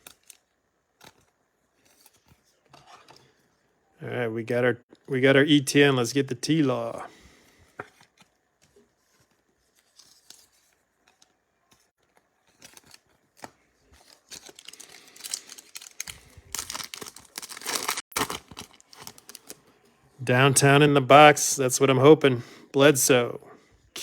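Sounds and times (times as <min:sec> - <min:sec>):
foil wrapper tearing and crinkling: 0:00.0 - 0:02.4, 0:12.4 - 0:19.6.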